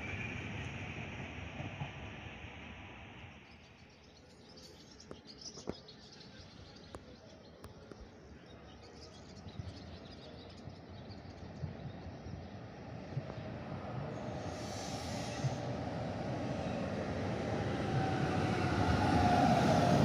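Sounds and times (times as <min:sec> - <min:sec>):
faint birds chirping: 0:03.2 - 0:17.9.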